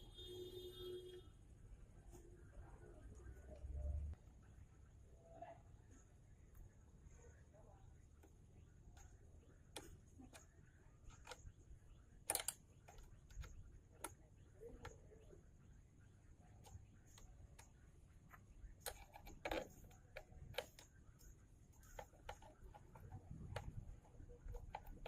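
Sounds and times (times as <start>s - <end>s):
faint background noise: 0.0s - 25.0s
light clicks and taps: 16.6s - 25.0s.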